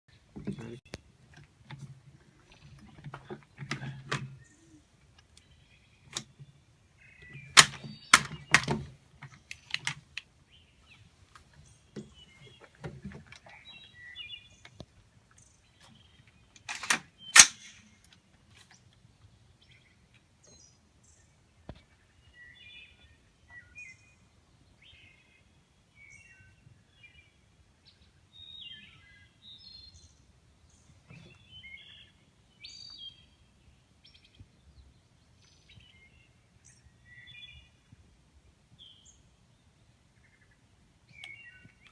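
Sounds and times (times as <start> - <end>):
birds chirping: 0.1 - 41.9
rifle shots: 16.7 - 17.8.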